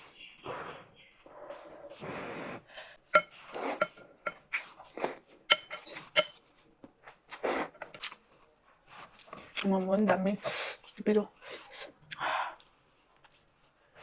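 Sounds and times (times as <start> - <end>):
utensils clinking against dishes: 3.2 - 4.5, 5.5 - 6.4.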